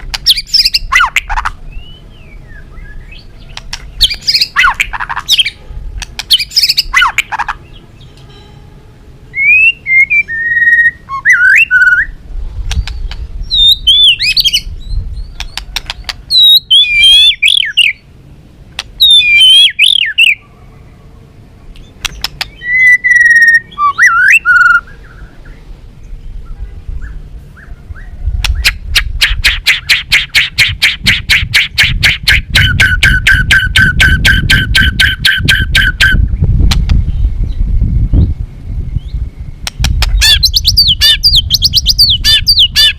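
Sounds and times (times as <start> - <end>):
bird singing whistled phrases: 0.2 - 5.6, 9.3 - 12.2, 12.8 - 15.6, 16.3 - 18.0, 19.0 - 20.4, 22.4 - 25.6, 40.2 - 42.9.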